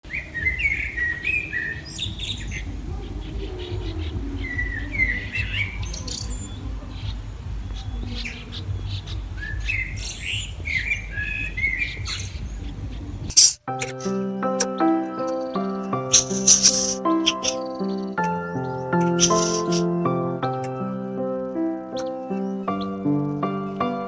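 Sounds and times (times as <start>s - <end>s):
birds chirping: 0.0s - 24.0s
steady low rumble: 0.2s - 13.3s.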